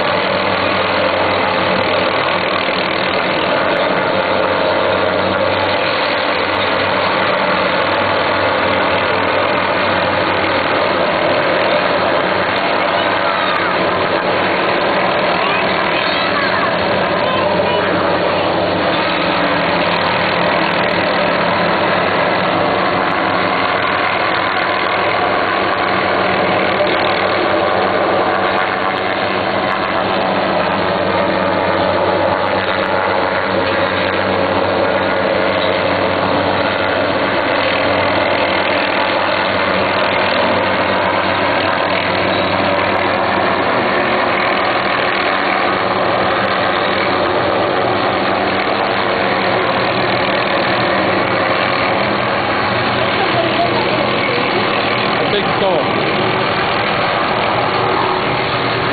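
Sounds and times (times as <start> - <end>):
engine running steadily: 0.0 - 58.9.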